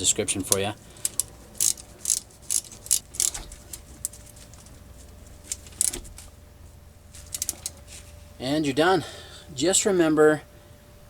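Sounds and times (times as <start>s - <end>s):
socket ratchet clicking: 0.0s - 6.3s, 7.2s - 7.9s.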